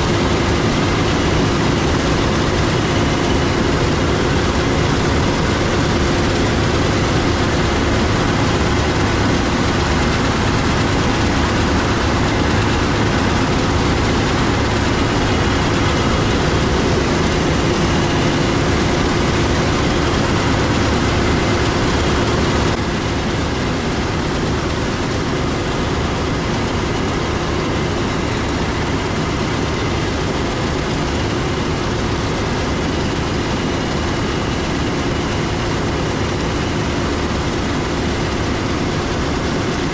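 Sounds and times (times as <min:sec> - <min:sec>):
diesel machinery engine drone: 0:00.0 - 0:39.9
steady hum: 0:00.0 - 0:39.9.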